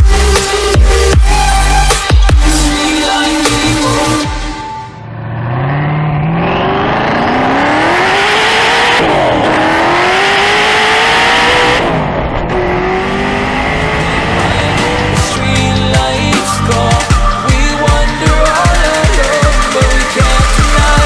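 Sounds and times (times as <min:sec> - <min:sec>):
car engine accelerating hard: 0:05.0 - 0:15.6.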